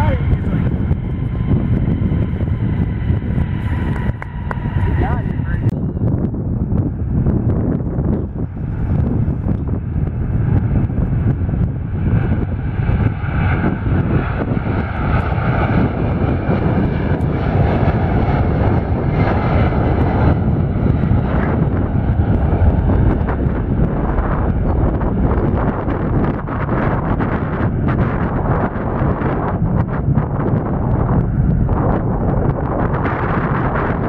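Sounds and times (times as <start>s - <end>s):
engine whine: 0.0s - 34.0s
jet engines rumbling: 0.0s - 34.0s.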